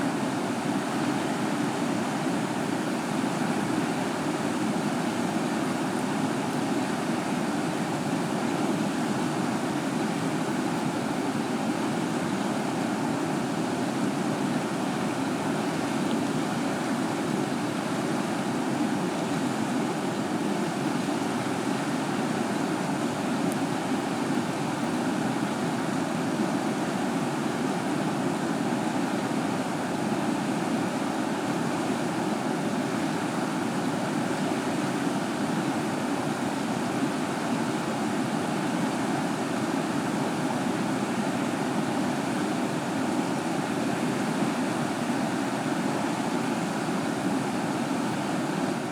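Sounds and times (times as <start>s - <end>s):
river water rushing: 0.0s - 48.9s.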